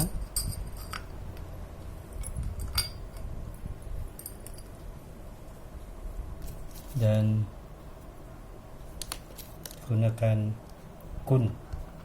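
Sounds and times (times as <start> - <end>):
small steel parts clinking: 0.0 - 1.1, 2.2 - 3.3, 4.2 - 4.7.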